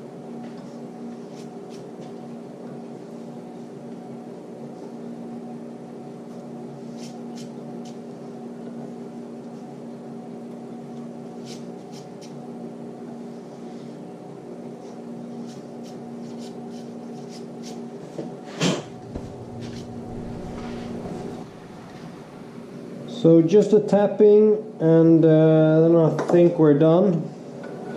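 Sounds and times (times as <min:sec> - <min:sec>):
electric machine tool motor hum: 0:18.8 - 0:23.1.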